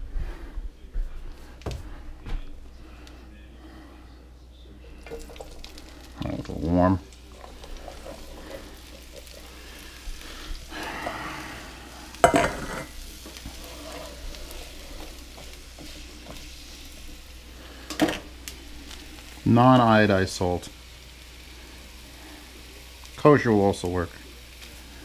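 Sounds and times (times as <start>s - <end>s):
food sizzling in a pan: 4.7s - 25.0s.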